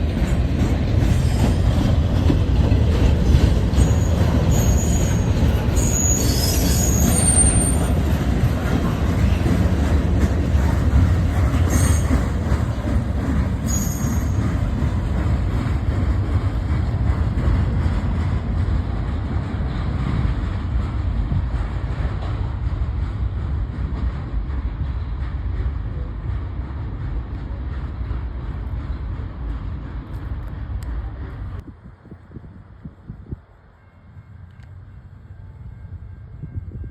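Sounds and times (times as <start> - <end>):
freight train rumbling: 0.0 - 36.9
wheel squeals: 3.7 - 8.1, 11.4 - 12.4, 13.6 - 14.7.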